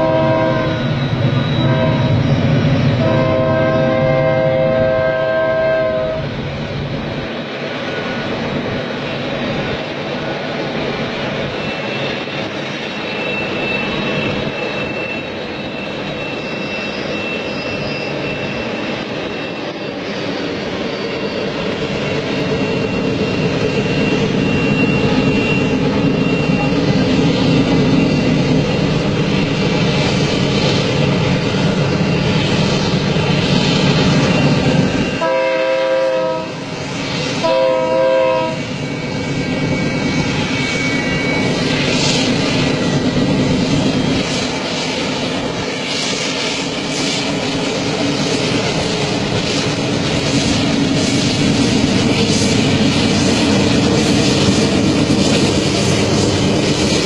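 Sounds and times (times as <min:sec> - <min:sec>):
train horn blasts: 0:00.0 - 0:01.0, 0:01.6 - 0:02.4, 0:03.0 - 0:06.3, 0:35.1 - 0:36.7, 0:37.4 - 0:38.7
train rumbling by: 0:00.0 - 0:57.0.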